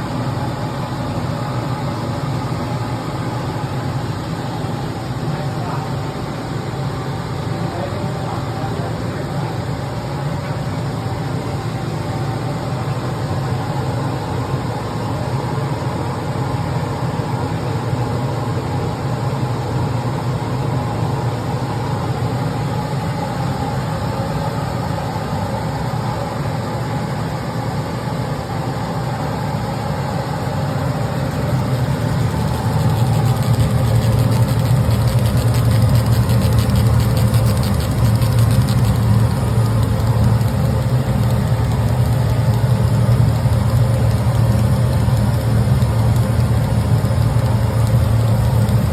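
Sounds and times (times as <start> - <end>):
laser cutter humming: 0.0 - 14.5, 21.4 - 48.9.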